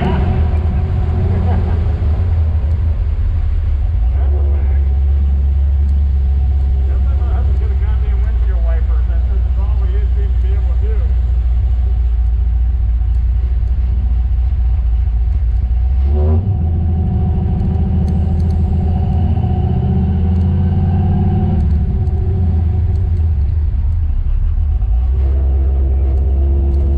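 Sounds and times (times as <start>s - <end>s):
car engine running: 0.0s - 26.9s.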